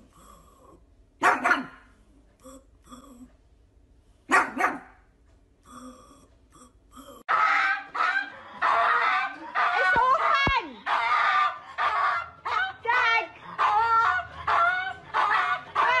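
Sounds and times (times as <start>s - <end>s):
dog barking: 1.2s - 1.9s, 4.3s - 5.0s, 7.3s - 16.0s.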